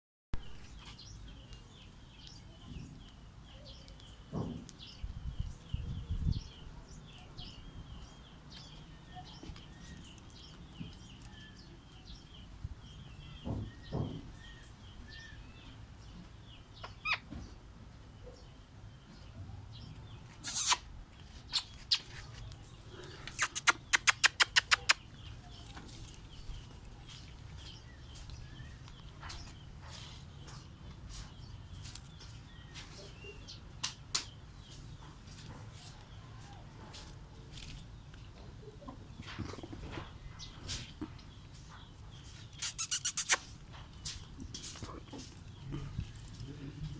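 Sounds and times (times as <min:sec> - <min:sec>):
parrots chirping: 0:16.8 - 0:17.3, 0:20.4 - 0:20.8, 0:22.9 - 0:25.0, 0:42.6 - 0:43.5
sharp clicks: 0:23.3 - 0:25.0.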